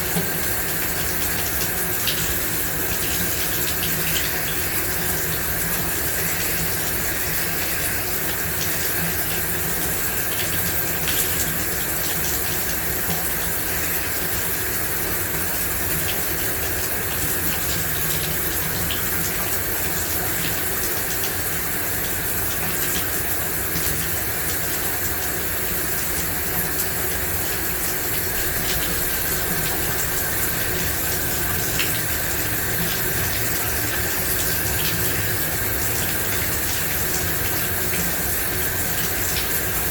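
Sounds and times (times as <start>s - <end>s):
water drips and spatters: 0.0s - 39.9s
shower water spraying: 20.4s - 39.9s.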